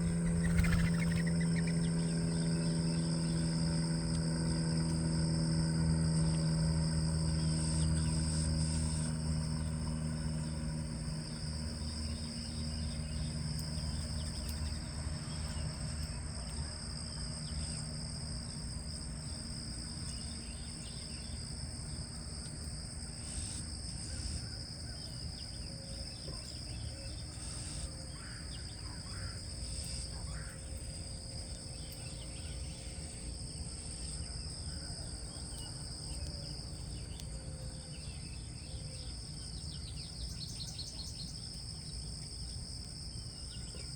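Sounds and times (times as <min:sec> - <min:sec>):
bird chirps: 0:00.0 - 0:03.4
low hum: 0:00.0 - 0:16.6
insect chorus trilling: 0:00.0 - 0:43.9.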